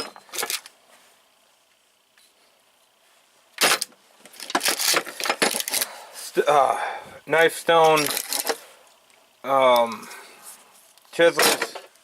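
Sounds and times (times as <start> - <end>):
metal tools clattering: 7.9 - 8.6, 11.3 - 11.9.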